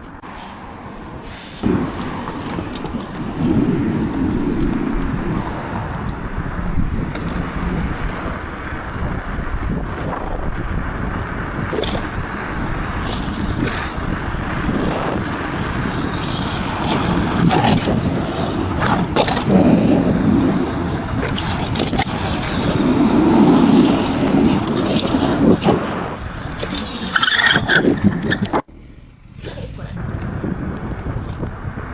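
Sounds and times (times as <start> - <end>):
motorcycle engine rumbling: 1.0 - 31.9
rattles and clicks: 1.6 - 6.2, 11.7 - 28.7.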